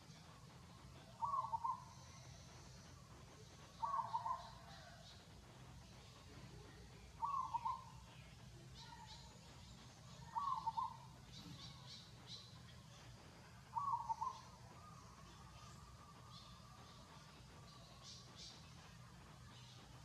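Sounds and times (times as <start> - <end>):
faint high chirps: 0.0 - 20.0.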